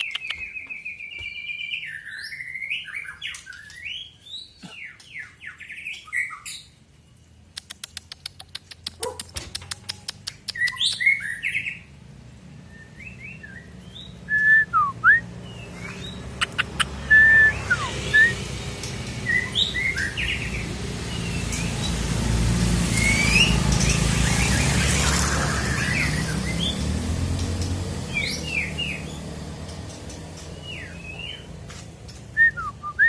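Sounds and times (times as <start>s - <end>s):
bird singing whistled phrases: 0.0s - 6.7s, 12.6s - 18.4s, 19.2s - 20.6s, 22.9s - 23.6s, 32.3s - 33.0s.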